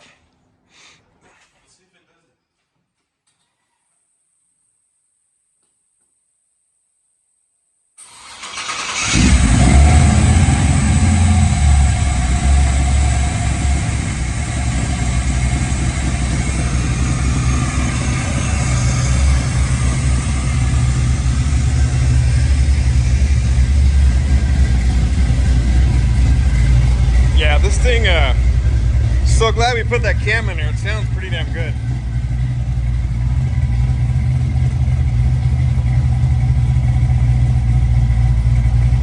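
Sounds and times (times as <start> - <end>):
car engine cranking and idling: 8.0 - 39.0.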